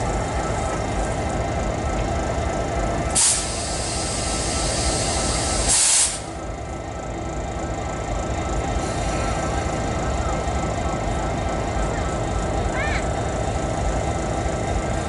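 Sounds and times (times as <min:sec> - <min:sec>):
compressed air hissing: 0:03.2 - 0:06.3.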